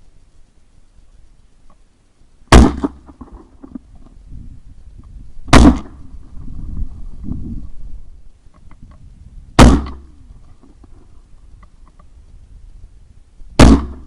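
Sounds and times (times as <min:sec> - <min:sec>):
shotgun shots with echo: 0:02.5 - 0:03.0, 0:05.5 - 0:06.0, 0:09.6 - 0:10.1, 0:13.6 - 0:14.0.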